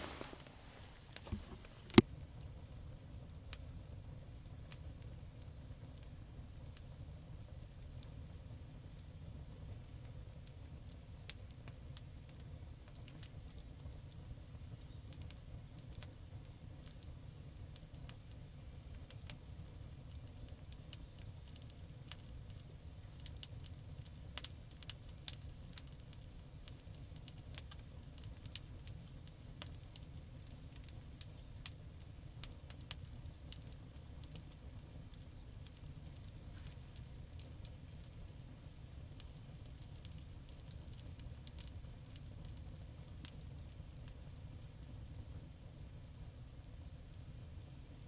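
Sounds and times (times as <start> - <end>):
campfire crackling and popping: 0.0 - 48.0
fire low rumble: 0.0 - 48.0.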